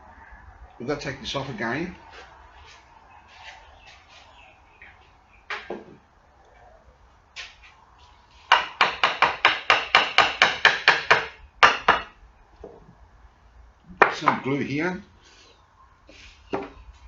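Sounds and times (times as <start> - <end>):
hammer striking wood: 8.5 - 12.2.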